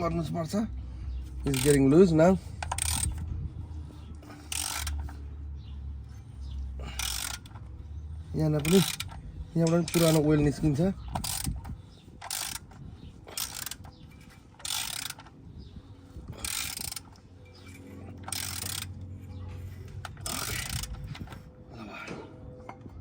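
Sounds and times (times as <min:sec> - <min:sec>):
ratchet wrench clicking: 0:01.3 - 0:03.3, 0:04.4 - 0:05.2, 0:06.8 - 0:07.7, 0:08.6 - 0:15.4, 0:16.3 - 0:19.0, 0:20.0 - 0:21.4.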